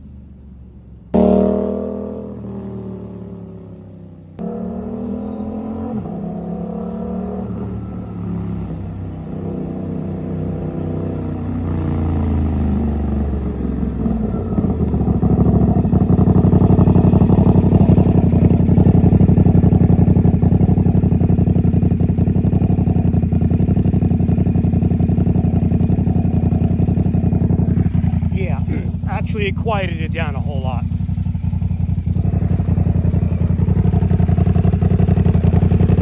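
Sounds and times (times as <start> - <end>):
motorcycle engine idling: 1.2 - 4.4, 11.3 - 36.0.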